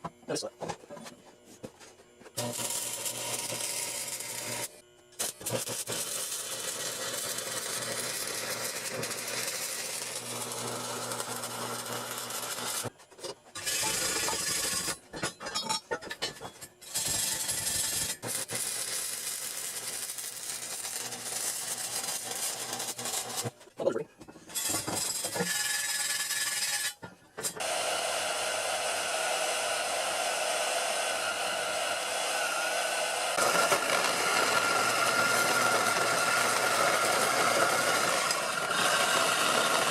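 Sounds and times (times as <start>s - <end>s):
welding arc crackling and hissing: 2.4s - 12.9s, 16.8s - 23.6s, 33.4s - 39.9s.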